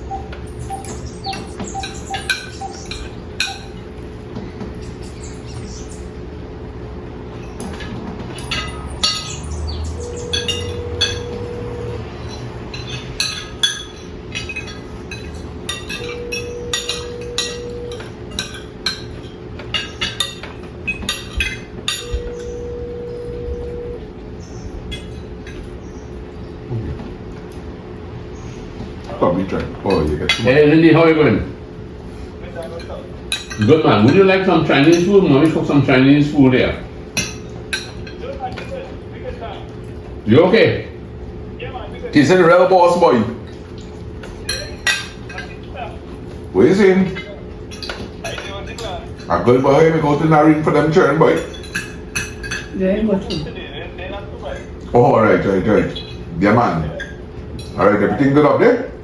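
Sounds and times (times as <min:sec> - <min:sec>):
phone ringback tone: 0:00.0 - 0:03.8, 0:09.9 - 0:12.3, 0:16.0 - 0:18.2, 0:22.0 - 0:24.1
steady low hum: 0:00.0 - 0:59.0.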